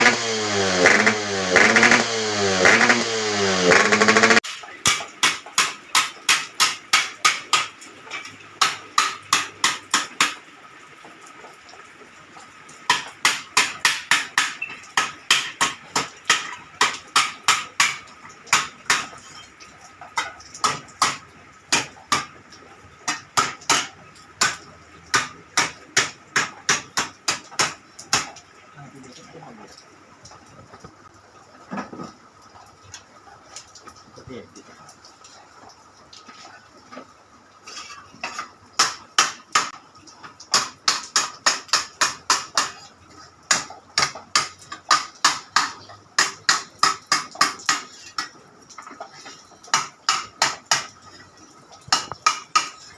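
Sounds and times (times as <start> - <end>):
loud pitched sound rising and falling: 0.0 - 4.4.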